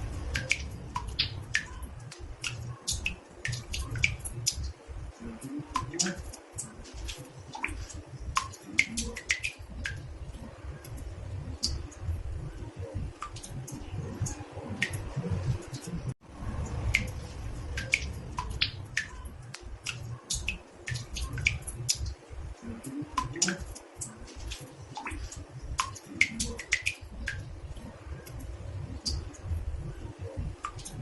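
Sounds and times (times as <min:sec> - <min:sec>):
water drops plinking into bathtub: 0:00.3 - 0:10.1, 0:16.7 - 0:31.0.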